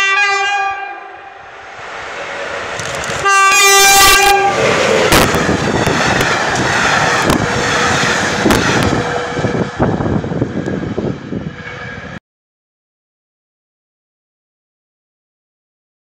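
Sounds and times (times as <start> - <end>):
locomotive horn: 0.0 - 1.5, 3.0 - 5.5, 7.0 - 10.2, 11.3 - 12.2
wheels clacking over rail joints: 1.7 - 9.7.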